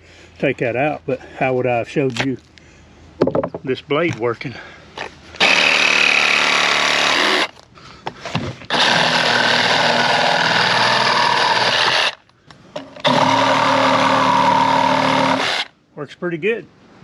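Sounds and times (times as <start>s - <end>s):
reciprocating saw cutting wood: 5.4s - 7.6s, 8.7s - 12.2s, 13.0s - 15.7s.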